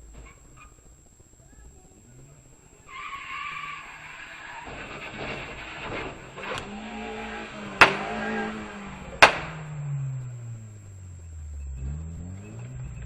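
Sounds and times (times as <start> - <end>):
car tires skidding: 0.0 - 13.0
loud car collision impacts: 2.6 - 11.0
low tone falling in pitch: 8.0 - 13.0.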